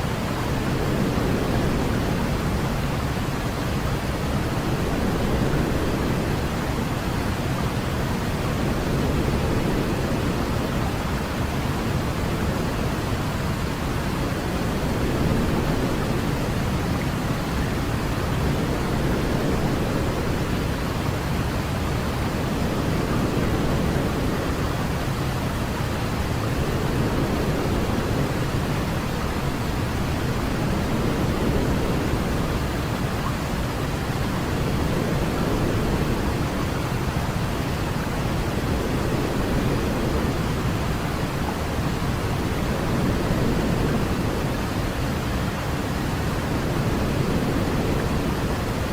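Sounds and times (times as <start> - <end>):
steady low hiss noise: 0.0 - 48.9.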